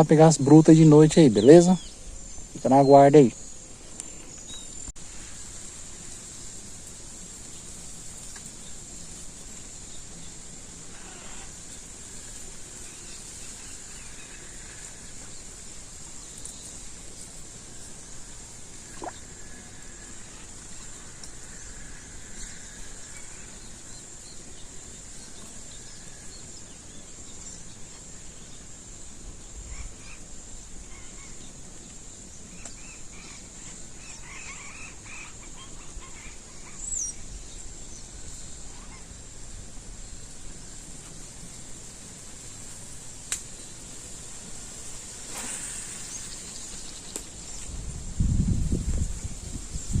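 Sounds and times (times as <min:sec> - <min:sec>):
birds calling: 0:00.0 - 0:04.9, 0:29.5 - 0:39.2.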